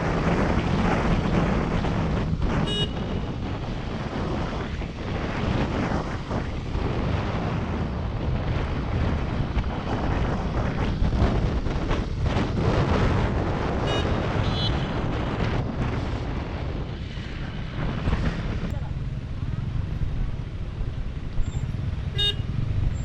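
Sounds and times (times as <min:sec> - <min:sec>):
road noise: 0:00.0 - 0:23.0
wind buffeting microphone: 0:00.0 - 0:23.0
motorcycle engine: 0:17.0 - 0:23.0.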